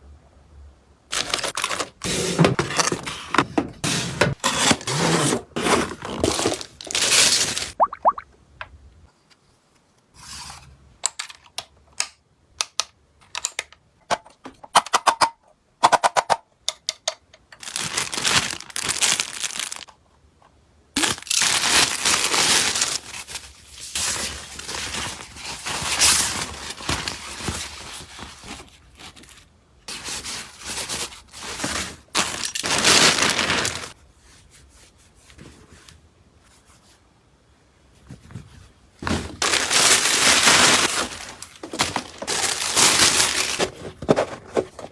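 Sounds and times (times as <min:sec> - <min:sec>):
packaging crinkling and rustling: 0:01.1 - 0:07.8, 0:17.6 - 0:20.0, 0:21.0 - 0:34.0, 0:38.1 - 0:44.9.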